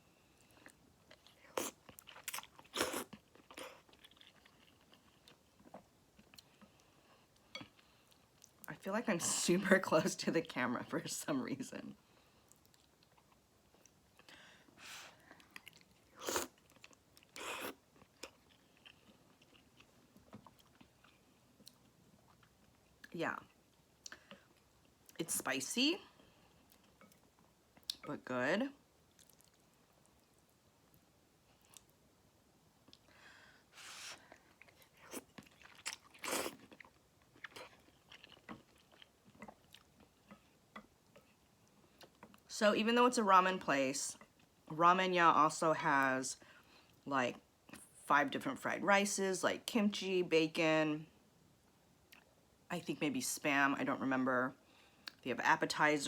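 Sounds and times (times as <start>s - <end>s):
person chewing food: 0.4s - 8.7s, 12.4s - 14.4s, 15.3s - 25.2s, 26.2s - 28.1s, 29.0s - 32.0s, 32.8s - 42.4s
chewing and wet mouth clicks: 29.1s - 30.3s, 34.6s - 41.4s.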